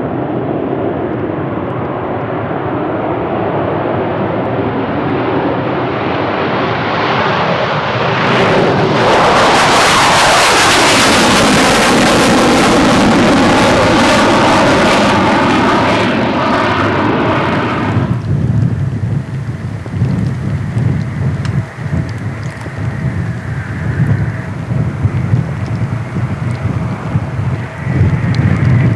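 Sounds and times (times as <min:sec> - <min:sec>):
jet taking off: 0:05.0 - 0:28.9.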